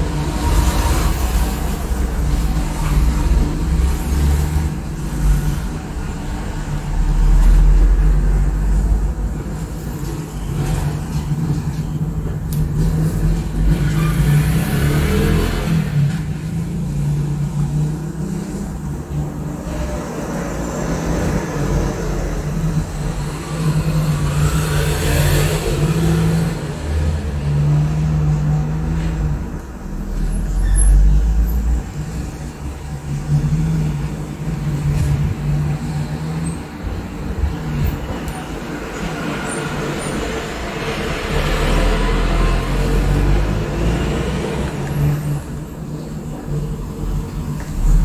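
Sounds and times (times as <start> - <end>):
engine drone: 0.0 - 48.0
traffic rumble: 0.0 - 48.0.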